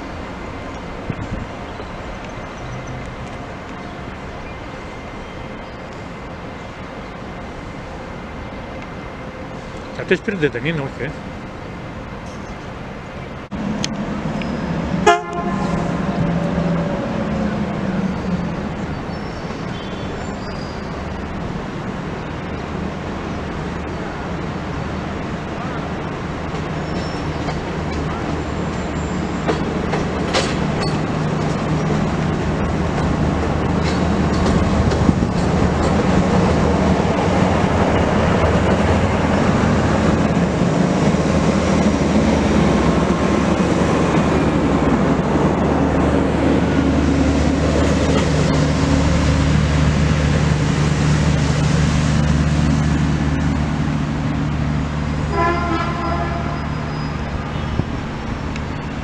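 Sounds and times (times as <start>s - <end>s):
train engine droning: 0.0s - 59.0s
train wheels on rails: 0.0s - 59.0s
train horn blast: 15.0s - 16.0s, 55.3s - 57.8s.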